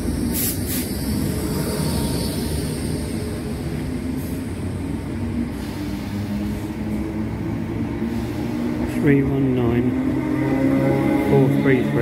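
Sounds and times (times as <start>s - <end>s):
electric train passing: 0.0s - 12.0s.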